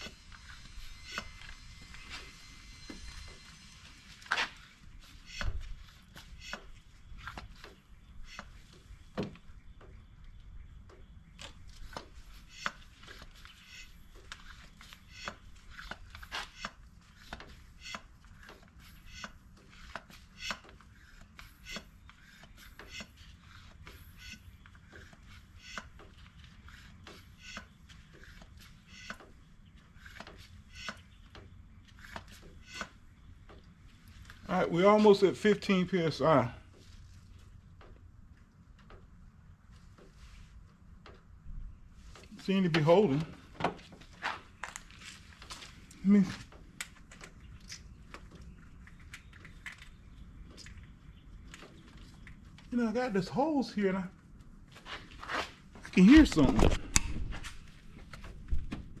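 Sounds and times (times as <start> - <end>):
hand pump clicking strokes: 0.0 - 8.6, 11.8 - 33.7.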